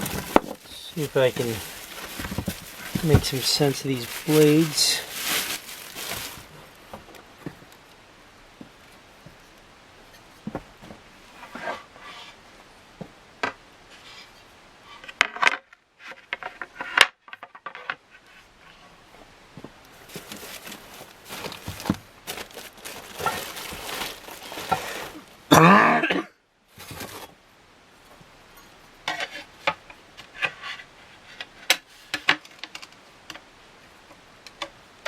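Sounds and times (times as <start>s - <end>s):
packaging rustling: 0.0s - 6.6s, 20.0s - 25.2s.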